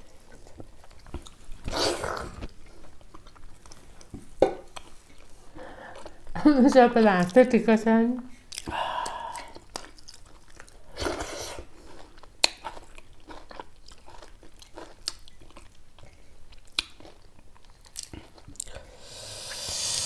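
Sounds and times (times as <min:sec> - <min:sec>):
people chewing food: 0:00.0 - 0:07.5, 0:08.3 - 0:19.8
breath-like rush: 0:18.7 - 0:20.0.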